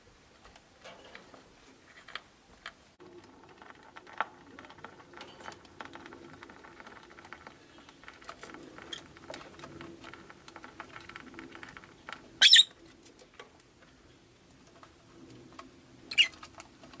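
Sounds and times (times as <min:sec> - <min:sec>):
faint clicks and scratches: 0:00.3 - 0:17.0
lovebird chirp: 0:12.4 - 0:12.7.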